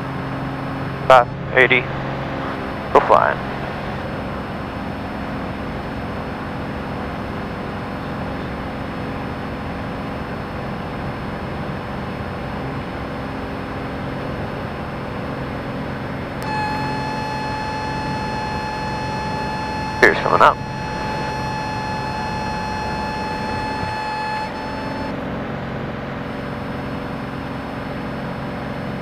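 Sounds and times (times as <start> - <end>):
propeller plane engine: 0.0 - 29.0
steady high tone: 0.6 - 5.2, 16.4 - 25.2.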